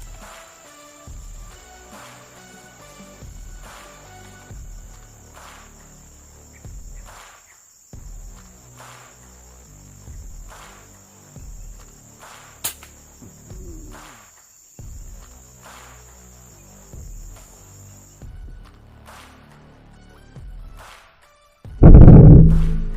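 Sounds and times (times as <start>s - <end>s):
insects chirring: 0.2s - 18.3s
sharp crack: 21.8s - 22.9s.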